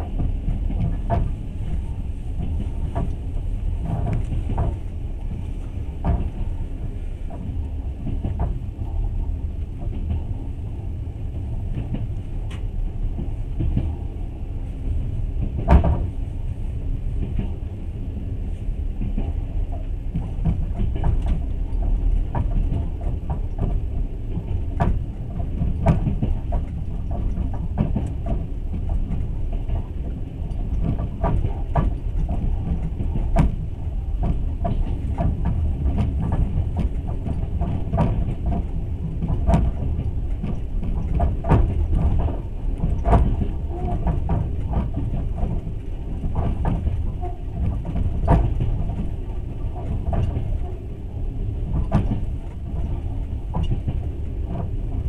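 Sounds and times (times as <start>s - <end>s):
train clacks and rattles: 0.0s - 55.0s
train wheels rumbling on track: 0.0s - 55.0s.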